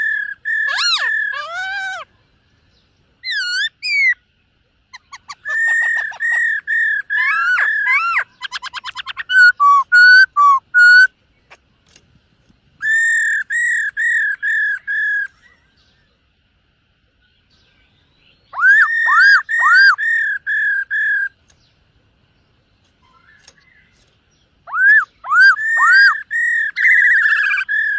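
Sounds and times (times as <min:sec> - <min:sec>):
bird singing whistled phrases: 0:05.0 - 0:11.1, 0:12.8 - 0:15.5, 0:18.3 - 0:21.4, 0:24.6 - 0:27.9.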